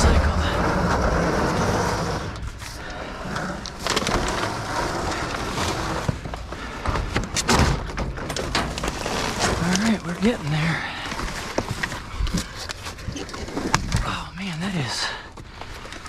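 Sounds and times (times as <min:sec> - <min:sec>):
doors knocking and scraping in dumpster: 0:00.0 - 0:02.7, 0:03.8 - 0:10.4.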